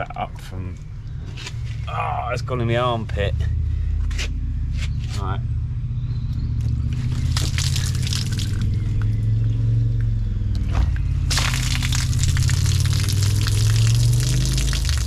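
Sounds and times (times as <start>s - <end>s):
low hum: 0.0s - 15.0s
water pouring from gutter: 6.9s - 8.8s, 11.3s - 15.0s.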